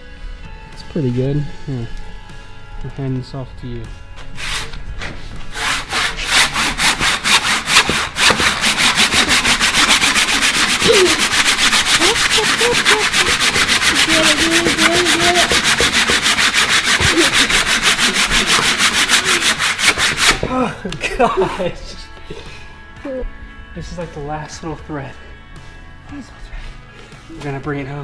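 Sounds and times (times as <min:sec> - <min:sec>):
hand saw cutting wood: 0:05.5 - 0:20.5.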